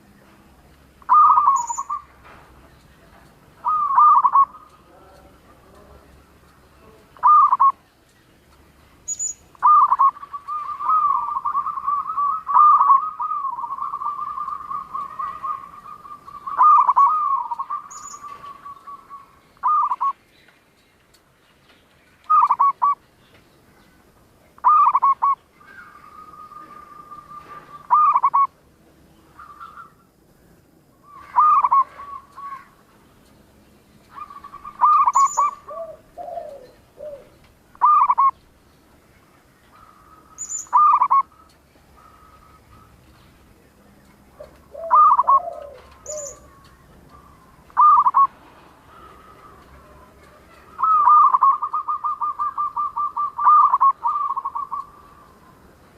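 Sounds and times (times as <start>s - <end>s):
dove cooing in trills: 1.0s - 2.2s, 3.6s - 5.9s, 7.2s - 7.8s, 9.5s - 20.2s, 22.3s - 23.0s, 24.6s - 28.6s, 31.0s - 32.8s, 34.1s - 38.4s, 39.7s - 43.0s, 44.3s - 55.9s.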